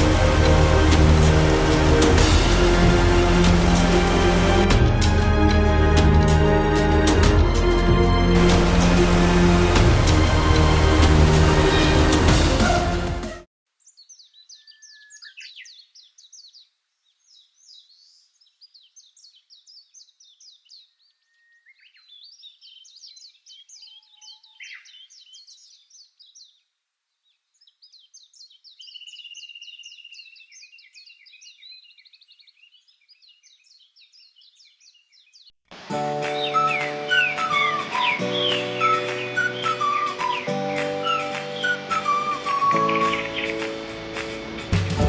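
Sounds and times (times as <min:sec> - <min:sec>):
songbird chirping: 0:13.7 - 0:45.0.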